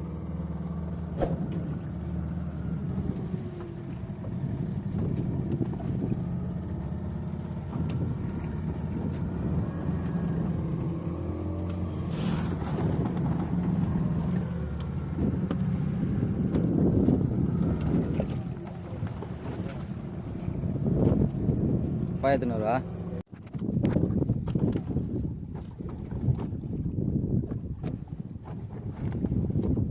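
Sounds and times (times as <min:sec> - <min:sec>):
boat engine running: 0:00.0 - 0:29.9.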